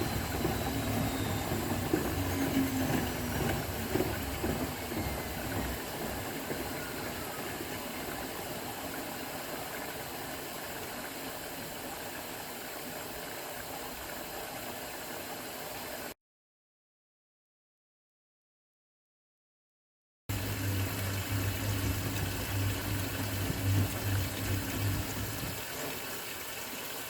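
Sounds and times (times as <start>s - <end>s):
motor whine falling in pitch: 0.0s - 8.3s, 20.3s - 25.6s
washing machine drum rumble: 0.0s - 9.2s, 20.3s - 25.9s.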